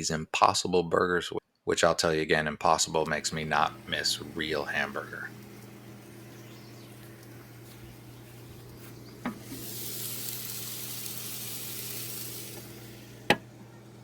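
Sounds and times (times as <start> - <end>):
steady low hum: 3.0 - 14.0
food sizzling on a grill: 3.2 - 14.0
grill click: 9.2 - 13.6.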